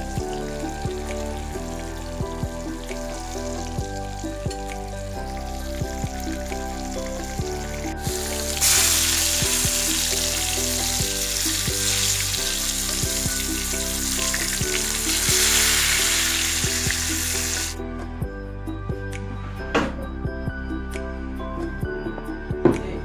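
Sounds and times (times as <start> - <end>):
patties sizzling in hot oil: 0.0 - 17.8
background music: 0.0 - 23.0.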